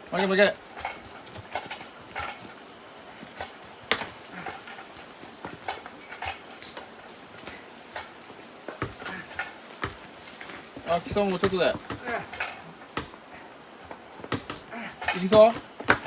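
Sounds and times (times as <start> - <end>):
wood snapping and knocking: 3.4 - 4.8, 8.7 - 13.2, 13.9 - 16.0
sharp wood crack: 3.4 - 13.3.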